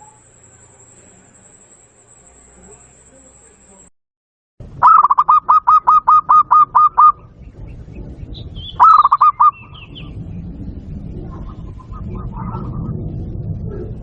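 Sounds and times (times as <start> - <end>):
high bird chirps: 0.0 - 3.8, 4.8 - 10.2
dove cooing: 4.8 - 7.4, 8.6 - 10.1, 11.3 - 13.0.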